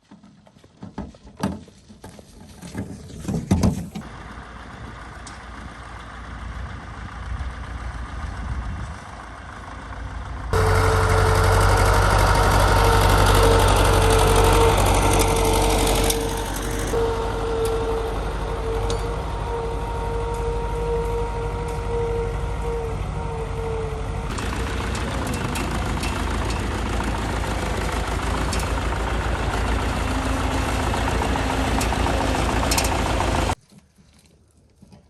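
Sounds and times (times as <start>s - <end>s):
tractor engine running: 1.6s - 33.6s
metal clanks and knocks: 24.3s - 33.6s.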